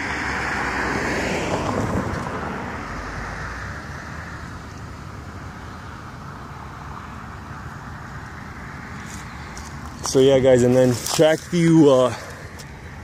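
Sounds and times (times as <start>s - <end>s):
car passing by: 0.0s - 4.5s
background traffic noise: 0.0s - 13.0s.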